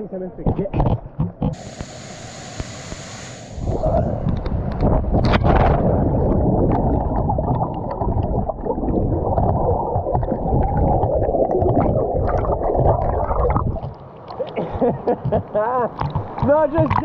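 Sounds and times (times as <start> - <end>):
churning water rumbling: 3.6 - 17.0.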